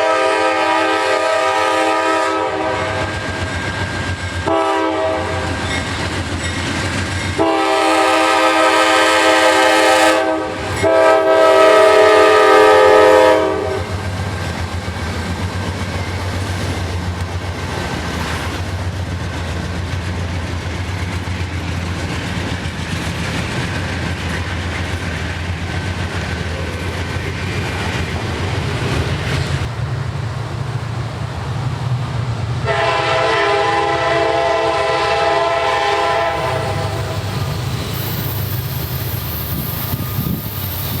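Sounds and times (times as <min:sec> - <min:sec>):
locomotive horn blasts: 0:00.0 - 0:03.3, 0:04.4 - 0:05.6, 0:07.4 - 0:13.9, 0:32.6 - 0:37.4
train rumbling past: 0:00.0 - 0:41.0.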